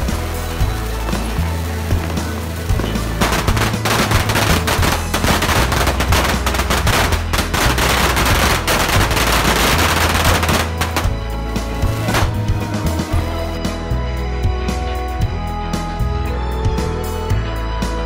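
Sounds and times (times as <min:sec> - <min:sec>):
rocket fireworks crackling volley: 0:00.0 - 0:13.2
background music: 0:00.0 - 0:18.0.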